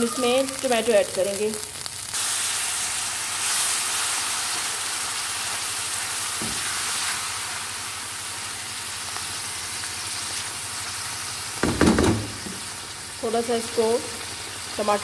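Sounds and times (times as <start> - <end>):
tomatoes sizzling in hot oil: 0.0 - 15.0.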